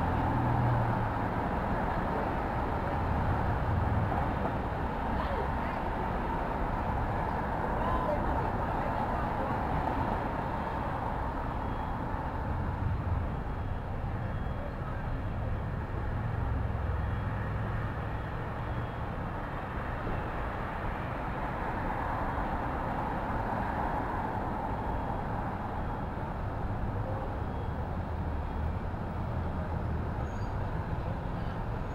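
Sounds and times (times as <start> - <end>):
traffic rumble: 0.0 - 31.9
vehicles passing: 0.0 - 31.9.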